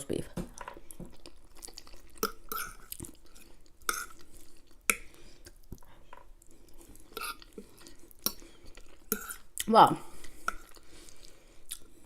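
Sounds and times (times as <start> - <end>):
wet chewing: 0.6 - 12.0.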